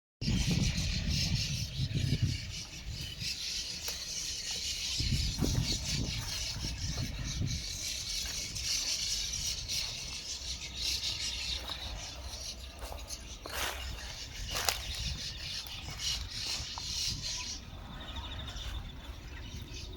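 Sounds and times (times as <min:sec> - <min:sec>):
low wind rumble on microphone: 0:00.2 - 0:03.8, 0:04.4 - 0:11.0, 0:11.6 - 0:19.9
flock of birds chattering: 0:00.2 - 0:19.9.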